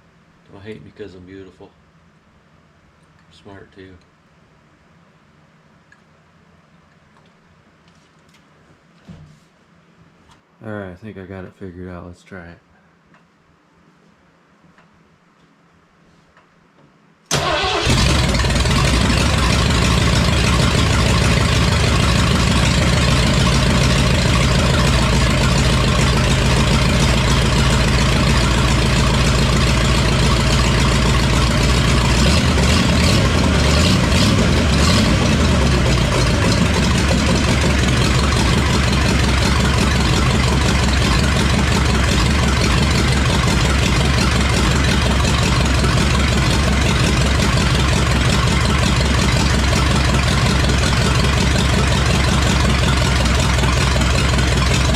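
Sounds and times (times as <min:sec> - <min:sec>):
engine idling: 0:17.3 - 0:54.9.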